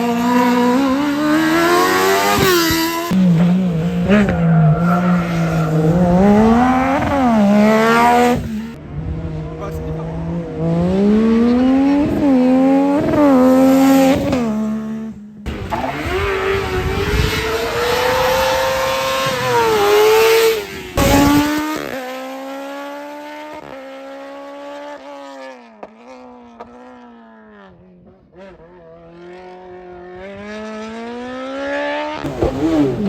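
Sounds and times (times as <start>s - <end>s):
racing car engine at high revs: 0.0s - 33.0s.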